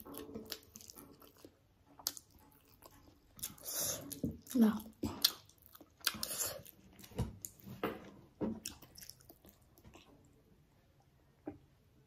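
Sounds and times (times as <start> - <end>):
person chewing with wet smacks: 0.0 - 7.8, 8.5 - 10.3.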